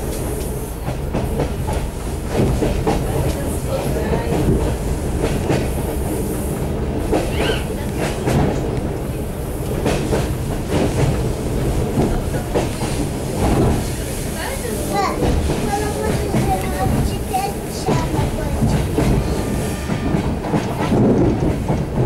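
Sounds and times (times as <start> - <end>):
train wheels clattering over rail joints: 0.0 - 22.0.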